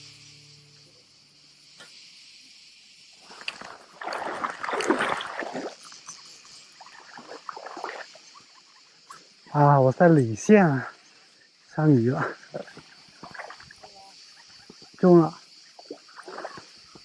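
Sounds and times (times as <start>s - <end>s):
insects hissing: 0.0s - 17.0s
water splashing and sloshing: 3.2s - 8.8s, 12.1s - 17.0s.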